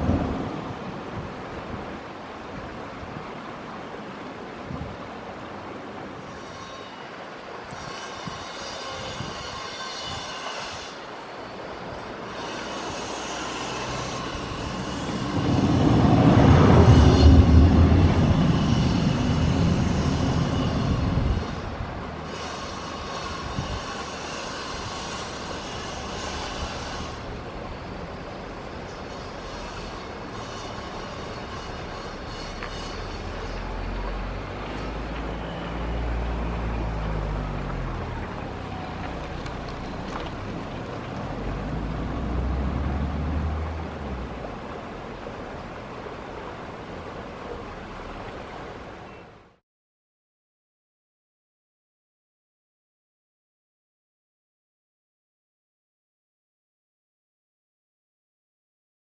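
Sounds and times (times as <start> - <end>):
faint high whine: 6.3 - 40.5
distant jet engines rushing: 11.4 - 49.1
jet engines roaring: 13.8 - 22.9.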